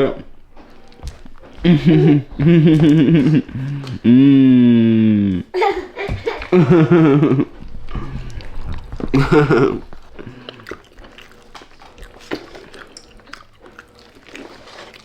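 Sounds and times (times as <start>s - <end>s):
person chewing food: 0.0s - 5.4s, 6.4s - 15.0s
person humming mmm: 1.9s - 5.5s, 7.9s - 10.9s.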